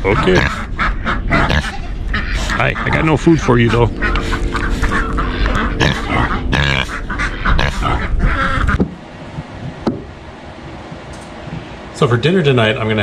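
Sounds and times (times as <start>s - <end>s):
pig grunting and oinking: 0.0s - 8.8s.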